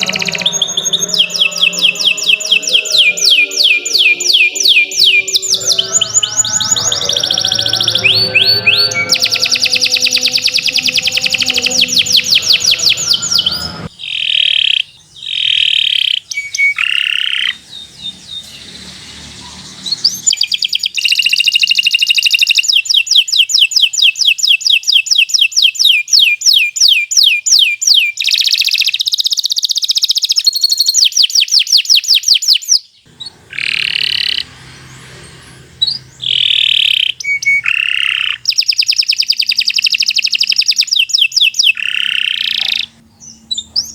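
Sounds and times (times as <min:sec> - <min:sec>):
canary singing: 0:00.0 - 0:43.9.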